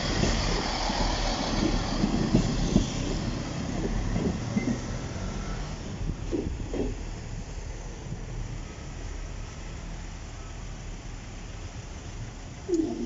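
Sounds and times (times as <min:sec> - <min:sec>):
train wheels clattering over track: 0:00.0 - 0:07.2.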